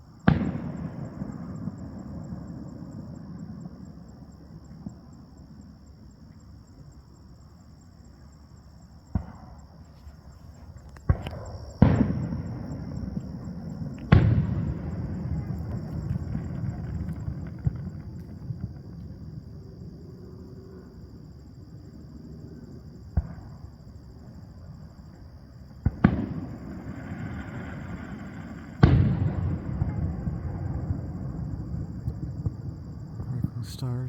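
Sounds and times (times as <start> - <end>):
fireworks booming and crackling: 0.0 - 5.2, 9.0 - 20.0, 23.1 - 24.6, 25.7 - 34.0.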